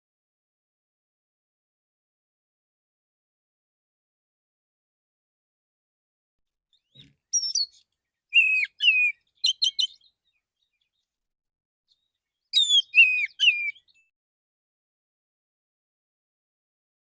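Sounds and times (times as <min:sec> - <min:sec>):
bird whistled song: 0:06.7 - 0:11.0, 0:11.9 - 0:14.1
sharp bird notes: 0:08.4 - 0:10.0, 0:12.6 - 0:13.9.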